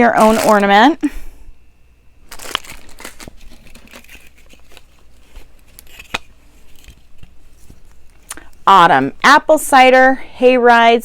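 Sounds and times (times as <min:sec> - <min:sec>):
packaging crinkling and rustling: 0:00.0 - 0:01.0, 0:02.2 - 0:08.3.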